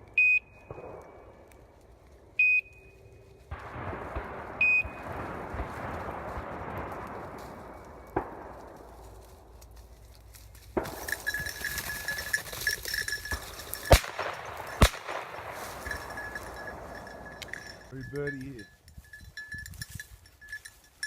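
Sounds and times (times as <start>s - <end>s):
steady rustling: 3.5s - 21.0s.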